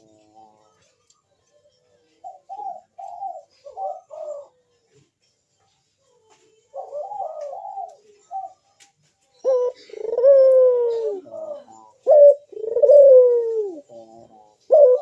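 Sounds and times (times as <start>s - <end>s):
dove cooing: 2.1s - 4.6s, 6.7s - 8.7s, 9.4s - 15.0s.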